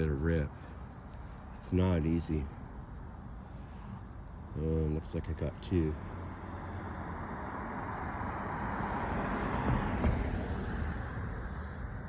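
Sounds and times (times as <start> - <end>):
car passing by: 5.9 - 12.0.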